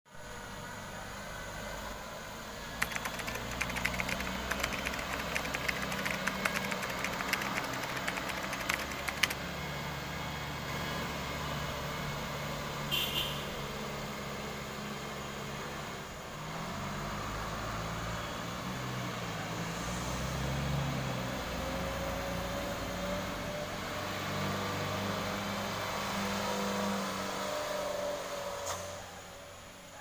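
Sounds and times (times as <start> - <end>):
rapid rattling clicks: 2.8 - 9.4.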